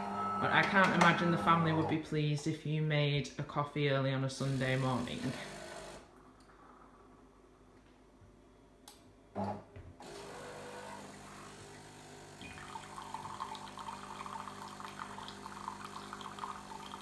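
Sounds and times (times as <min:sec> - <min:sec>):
espresso machine running hum: 0:00.0 - 0:01.9, 0:04.4 - 0:06.0, 0:10.0 - 0:17.0
espresso machine clunk: 0:00.6 - 0:01.4.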